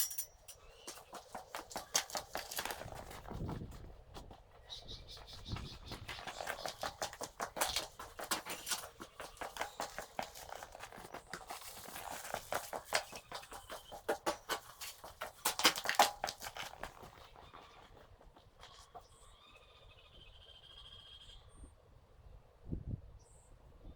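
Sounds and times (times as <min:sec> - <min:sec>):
tools being handled clicking: 0:00.0 - 0:00.6
rustling: 0:00.0 - 0:19.3.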